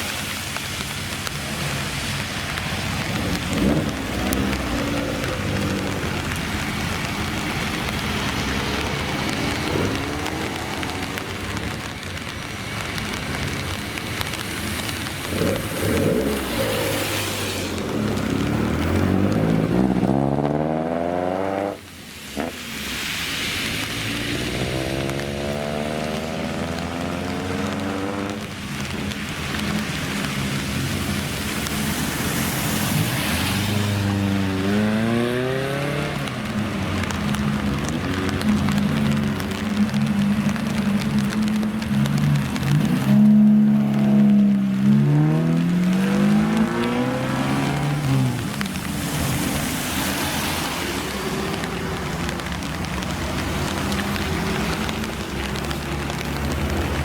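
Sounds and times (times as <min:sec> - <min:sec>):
steady rushing hiss: 0:00.0 - 0:19.9
car engine revving: 0:02.6 - 0:11.8, 0:14.4 - 0:21.8, 0:23.7 - 0:28.8, 0:29.8 - 0:57.0.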